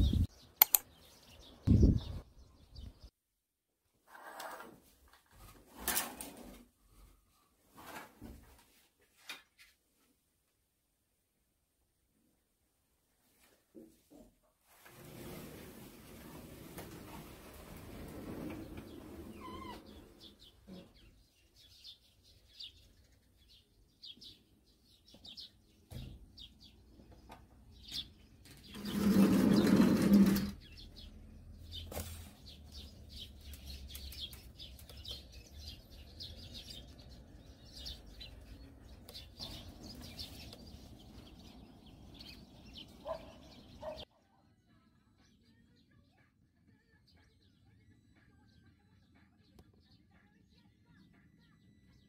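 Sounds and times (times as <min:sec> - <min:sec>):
small birds chirping: 0:00.0 - 0:03.1, 0:15.3 - 0:52.0.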